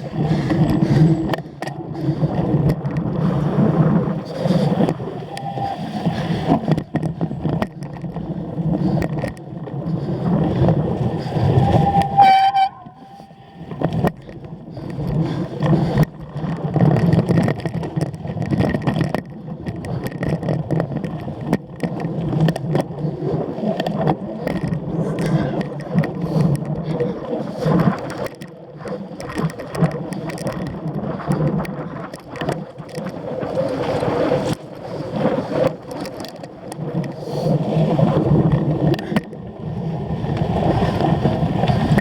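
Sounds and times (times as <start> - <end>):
wind rush: 0.0 - 17.1
bike rattling over rough ground: 0.0 - 42.0
brief high squeal: 5.2 - 6.0, 11.4 - 13.6.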